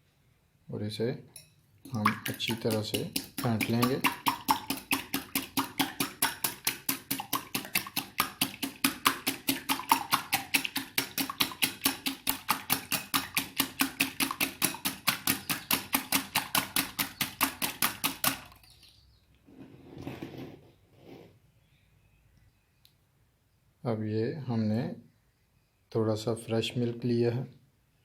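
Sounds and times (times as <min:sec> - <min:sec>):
eggs beaten in a bowl: 0:01.8 - 0:18.8
utensil clicking against bowl: 0:01.9 - 0:18.4.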